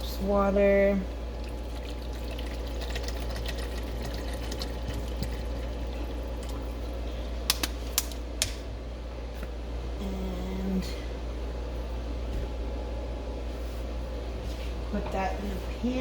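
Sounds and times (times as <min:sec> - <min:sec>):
water pouring into a cup: 0:01.3 - 0:07.3.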